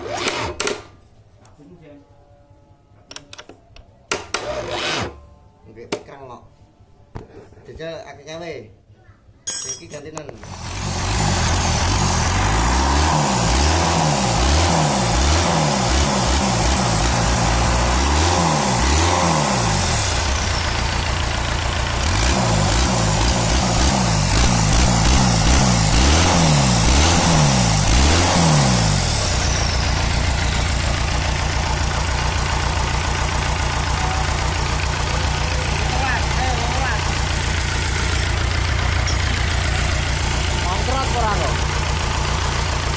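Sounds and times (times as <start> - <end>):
combine harvester engine revving: 10.4 - 42.9.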